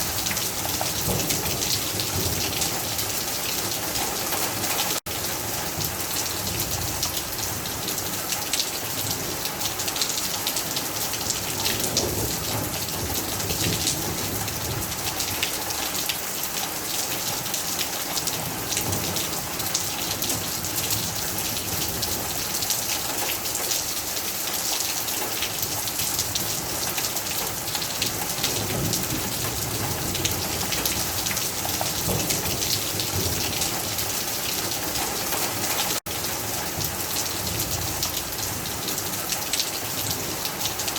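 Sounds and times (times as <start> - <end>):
heavy rain on hard surfaces: 0.0 - 40.9.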